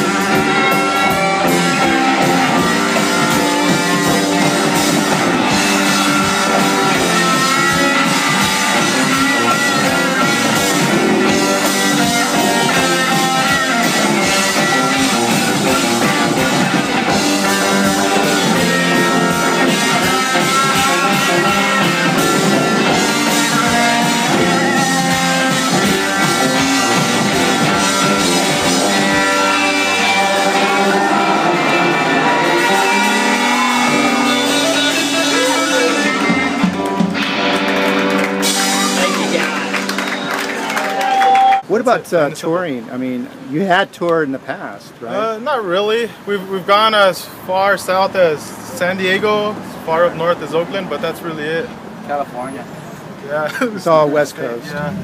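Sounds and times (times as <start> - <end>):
electric guitar lines: 0.0 - 41.8
rock band playing: 0.0 - 41.8.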